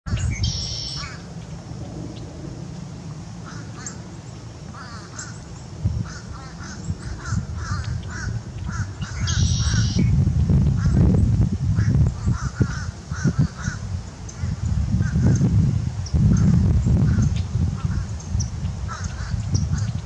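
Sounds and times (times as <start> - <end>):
bird buzzy high call: 0.1 - 1.3, 3.4 - 10.2
low rumble: 0.1 - 20.0
bird short repeated calls: 0.4 - 1.2, 4.7 - 10.1.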